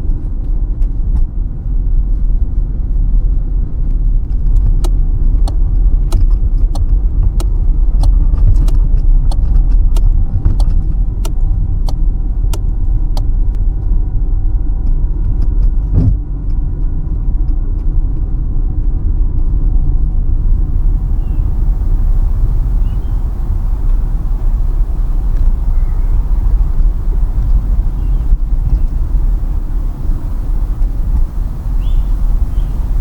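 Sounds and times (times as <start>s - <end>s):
car cabin engine and road rumble: 0.0s - 13.7s, 19.9s - 33.0s
sharp regular ticking: 20.2s - 33.0s.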